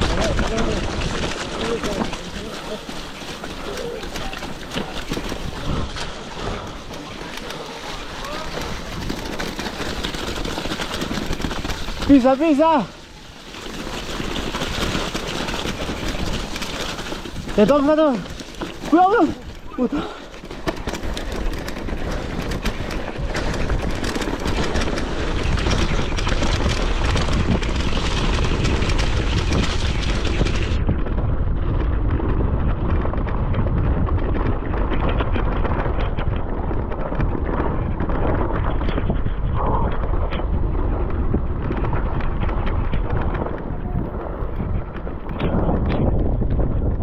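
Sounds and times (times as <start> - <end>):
debris avalanche rushing: 0.0 - 46.8.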